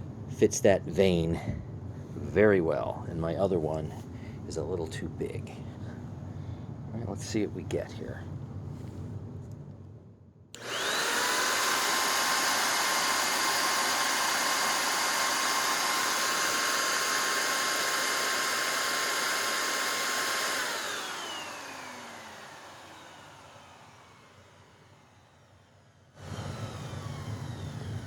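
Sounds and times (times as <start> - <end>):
vacuum switch: 10.6 - 24.3, 26.2 - 28.0
vacuum motor whine: 10.6 - 28.0.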